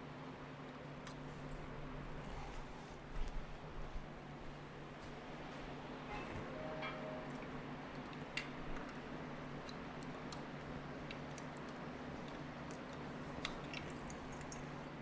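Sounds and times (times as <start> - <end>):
steady low hum: 0.0 - 15.0
light clicks and ticks: 7.3 - 15.0.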